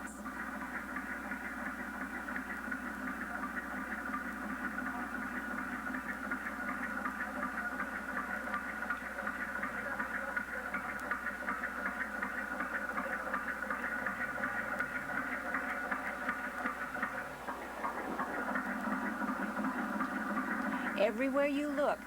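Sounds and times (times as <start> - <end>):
model engine ticking: 0.0 - 22.0
steady hiss: 0.0 - 22.0.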